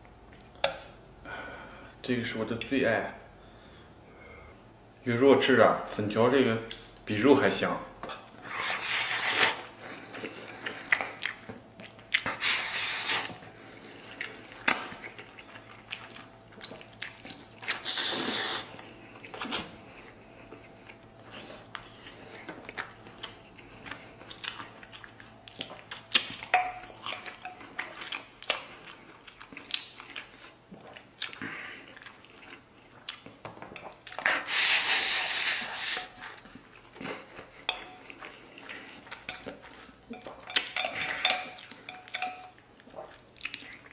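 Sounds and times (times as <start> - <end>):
wet chewing and lip smacking: 9.8 - 34.6, 42.8 - 43.9
slurping: 12.1 - 16.1, 17.6 - 22.5, 34.1 - 36.5.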